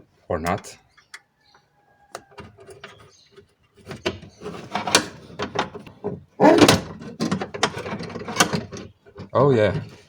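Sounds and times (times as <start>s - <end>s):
metal parts rattling in car door: 3.8s - 9.4s.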